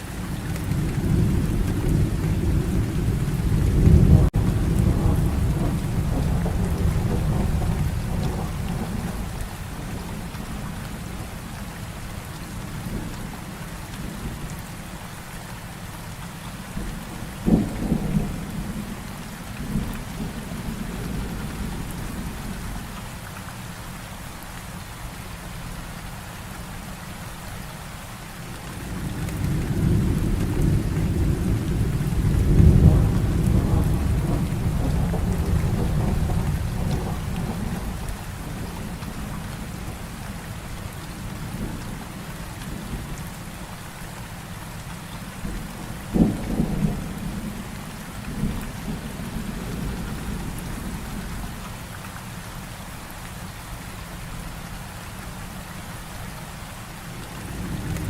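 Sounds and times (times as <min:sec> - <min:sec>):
heavy rain falling: 0:00.0 - 0:58.0
thunder rumbling: 0:00.1 - 0:11.4, 0:16.8 - 0:22.9, 0:28.8 - 0:43.2, 0:45.4 - 0:51.6.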